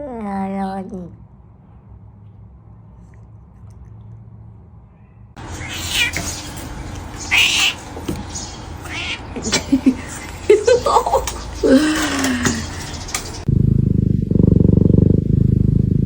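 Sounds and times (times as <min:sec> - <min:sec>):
kitten meowing: 0:05.4 - 0:08.1, 0:08.8 - 0:09.6.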